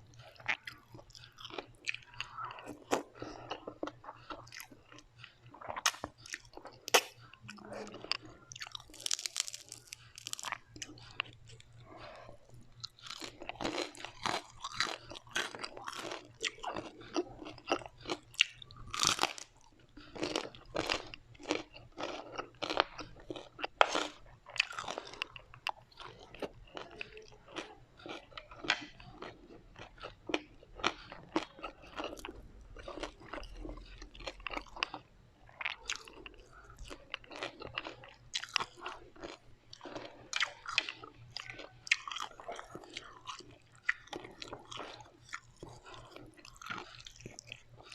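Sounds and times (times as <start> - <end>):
chewing crisp fried food: 0.0 - 47.9.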